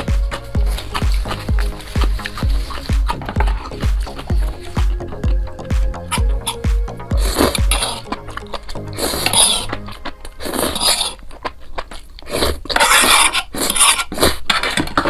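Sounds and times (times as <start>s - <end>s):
background music with bass: 0.0s - 10.9s
mouth eating noises: 0.0s - 15.0s
cutlery scraping on a bowl: 12.4s - 15.0s.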